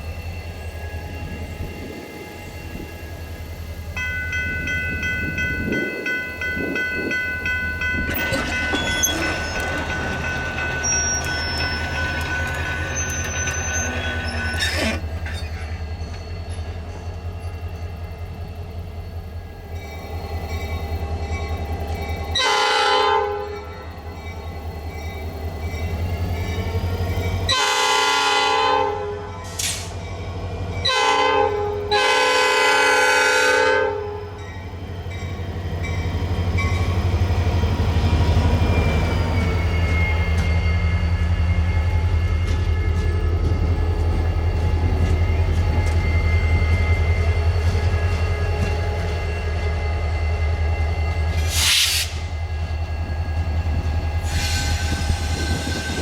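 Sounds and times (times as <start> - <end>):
diesel train engine and wheel rumble: 0.0 - 56.0
bell ringing: 4.0 - 14.6
locomotive air horn blasts: 22.4 - 23.6, 27.5 - 29.8, 30.9 - 34.4.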